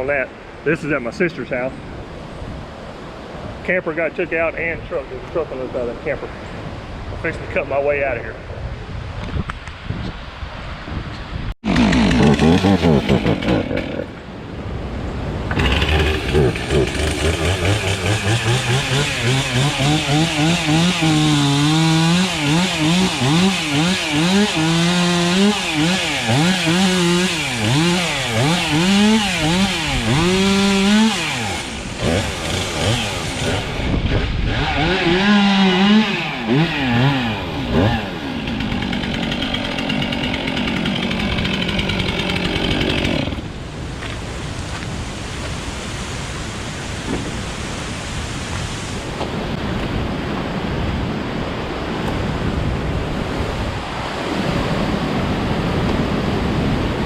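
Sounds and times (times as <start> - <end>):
chainsaw cutting wood: 11.6 - 14.3, 15.5 - 44.9.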